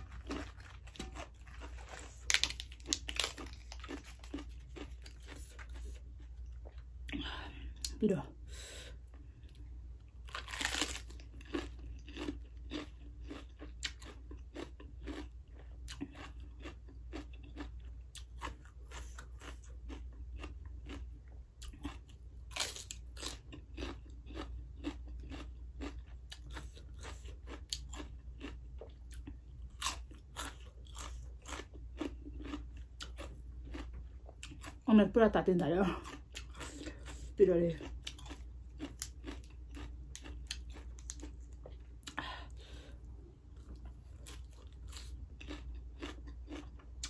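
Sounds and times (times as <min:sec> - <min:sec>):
lettuce crunching chews: 0:00.0 - 0:08.0, 0:08.9 - 0:34.9, 0:35.8 - 0:47.0.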